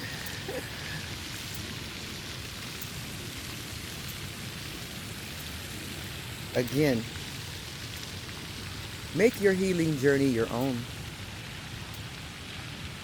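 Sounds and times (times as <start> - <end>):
outdoor background hiss: 0.0 - 13.0
faint light ticks: 11.9 - 12.1.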